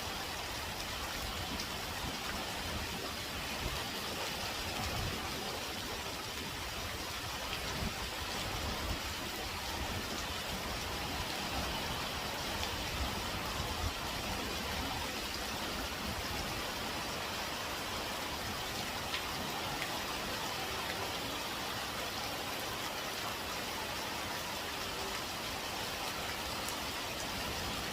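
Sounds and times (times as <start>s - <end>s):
heavy rain falling: 0.0s - 27.9s.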